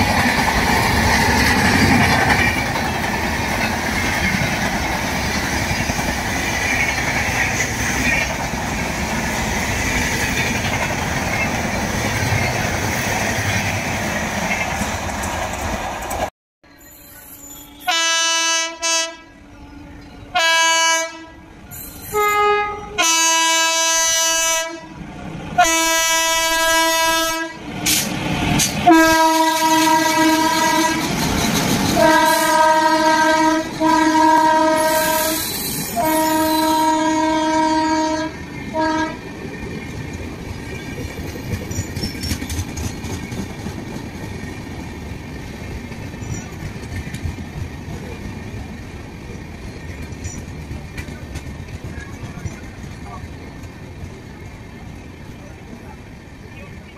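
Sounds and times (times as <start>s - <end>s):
approaching train rumble: 0.0s - 56.9s
train coaches rushing past: 0.0s - 56.9s
locomotive horn blasts: 17.5s - 25.0s, 25.6s - 27.6s, 28.8s - 31.1s, 32.0s - 39.2s.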